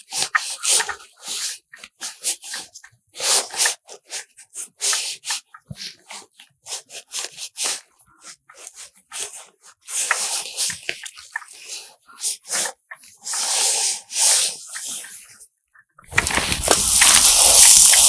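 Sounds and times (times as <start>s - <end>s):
rustling and scraping: 16.1s - 18.0s.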